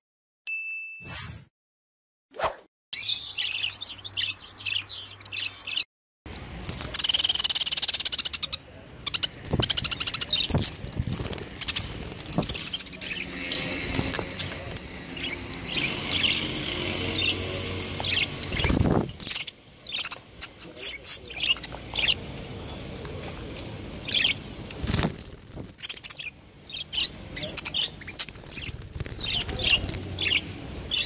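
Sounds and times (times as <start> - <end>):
budgerigars chirping and chattering: 6.8 - 10.8, 11.4 - 22.2, 24.0 - 24.5, 25.8 - 31.0.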